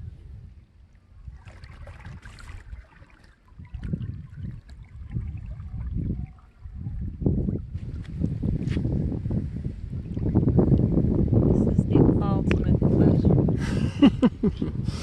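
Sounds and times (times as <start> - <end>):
wind buffeting microphone: 0.0 - 15.0
water wash: 1.3 - 11.5.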